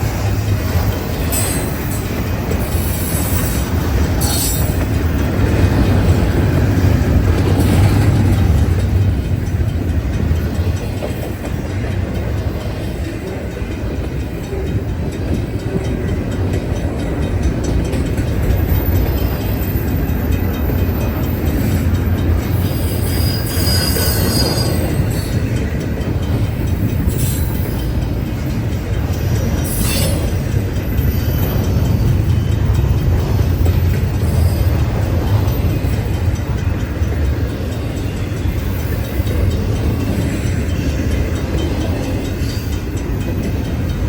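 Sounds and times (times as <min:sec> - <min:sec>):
freight cars rumbling: 0:00.0 - 0:44.0
wheel flange squeal: 0:22.7 - 0:25.3.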